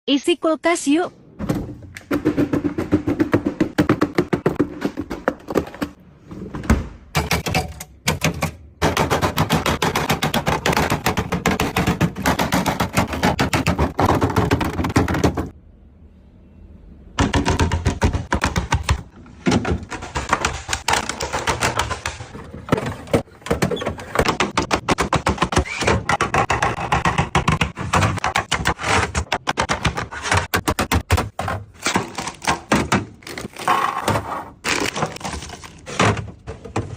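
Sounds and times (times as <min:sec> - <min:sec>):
plastic packaging clattering: 0:31.3 - 0:36.9.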